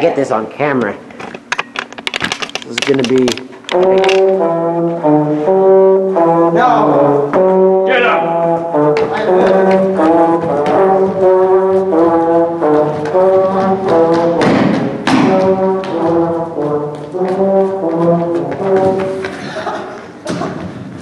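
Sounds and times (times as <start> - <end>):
concert band brass music: 3.7 - 19.7.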